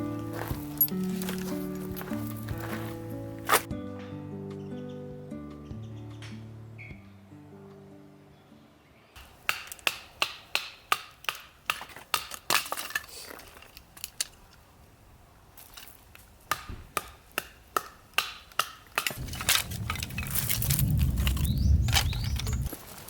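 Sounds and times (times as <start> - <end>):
sharp knocks or chops: 16.5 - 19.4
low rumble: 19.2 - 22.7.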